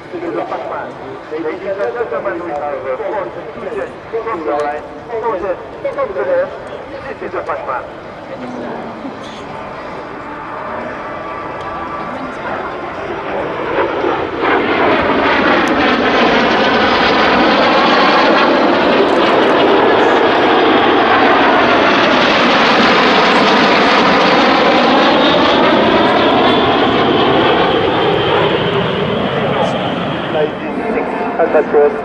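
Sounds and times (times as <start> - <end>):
jets flying past: 0.0 - 32.0.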